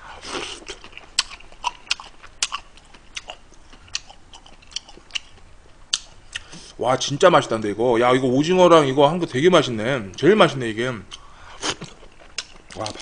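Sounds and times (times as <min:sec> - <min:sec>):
wet mouth chewing: 0:00.3 - 0:06.6, 0:11.1 - 0:13.0.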